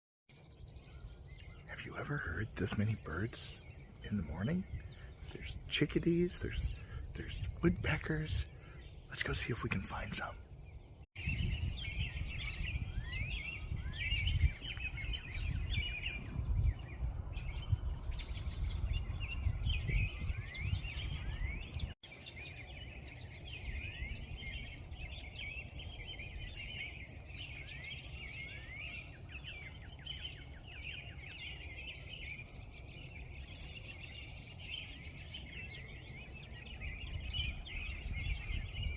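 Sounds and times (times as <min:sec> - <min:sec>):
songbirds chirping and trilling: 0:00.3 - 0:38.9.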